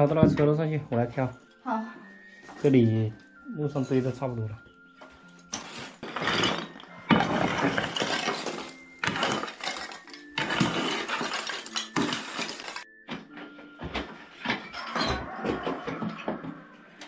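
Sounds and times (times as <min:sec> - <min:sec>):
rubble being scraped: 0:05.6 - 0:12.8.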